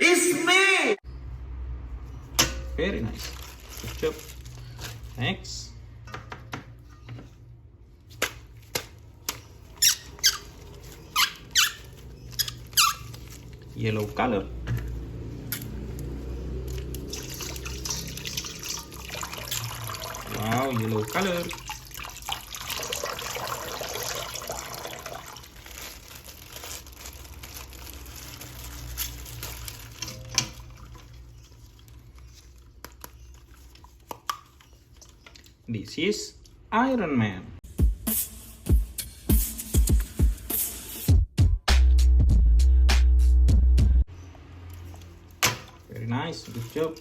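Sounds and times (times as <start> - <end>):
plastic toy crinkling handling: 3.0 - 5.3, 9.4 - 15.1, 25.0 - 35.6
water running and splashing: 16.6 - 32.0.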